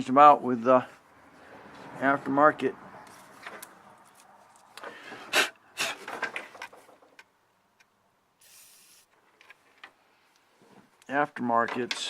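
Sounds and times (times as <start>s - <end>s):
short even hiss: 8.4s - 9.1s.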